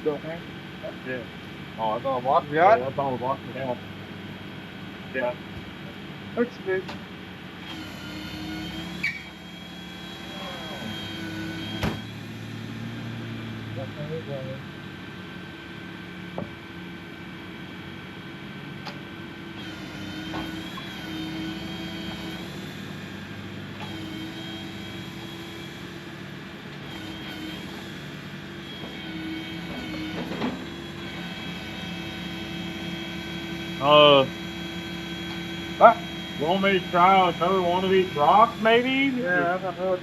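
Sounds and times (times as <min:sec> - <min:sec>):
excavator engine whining: 0:00.0 - 0:40.0
loud high-pitched squeal: 0:07.7 - 0:13.0, 0:23.8 - 0:26.2, 0:28.6 - 0:39.8.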